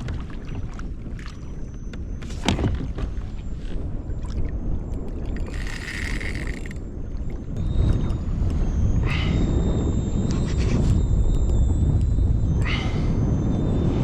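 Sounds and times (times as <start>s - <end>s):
water noise: 0.0s - 14.0s
wind: 0.0s - 14.0s
steady low rumble: 3.3s - 14.0s.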